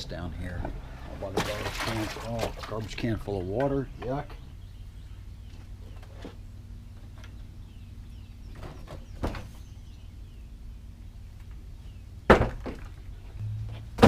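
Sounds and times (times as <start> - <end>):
low steady hum: 0.0 - 14.0
loud thump: 13.4 - 14.0.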